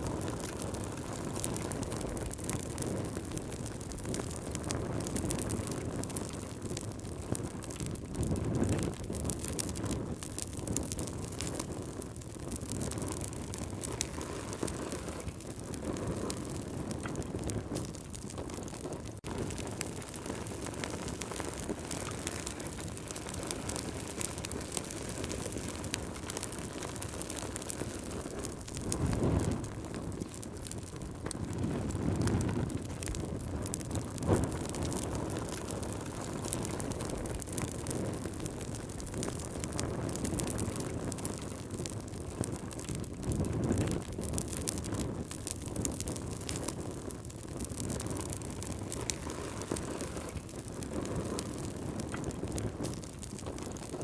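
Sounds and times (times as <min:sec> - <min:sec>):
campfire crackling: 0:00.0 - 0:54.0.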